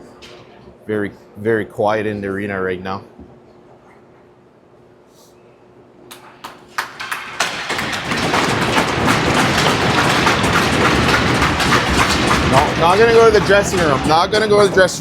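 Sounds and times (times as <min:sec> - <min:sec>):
arena crowd applauding: 0:06.1 - 0:15.0.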